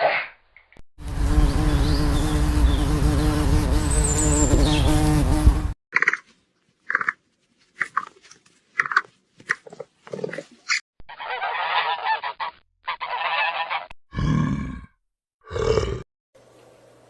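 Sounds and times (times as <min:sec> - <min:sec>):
geese honking: 0:11.1 - 0:13.9.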